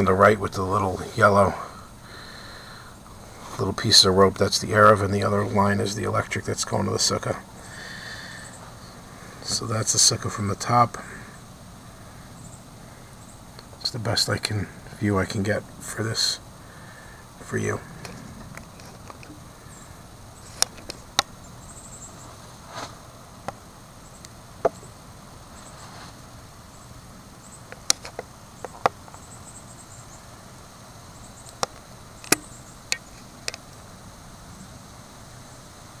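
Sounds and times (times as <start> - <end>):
faint outdoor background: 0.0 - 36.0
faint high chirping: 7.6 - 9.4, 11.0 - 13.7, 21.3 - 22.4.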